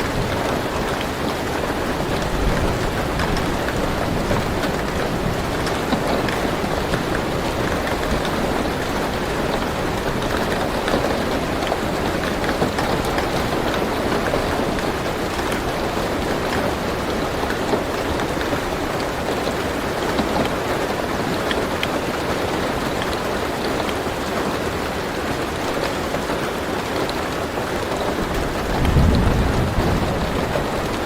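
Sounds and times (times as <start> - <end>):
rain on car roof: 0.0 - 31.0
raindrop ticks: 28.0 - 31.0.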